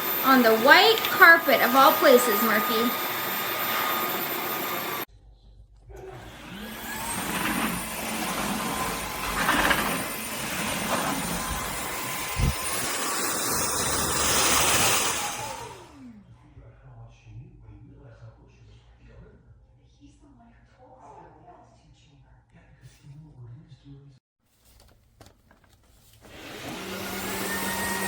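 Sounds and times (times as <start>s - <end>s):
vacuum mop whining: 0.0s - 5.1s, 5.9s - 16.2s, 25.7s - 28.0s.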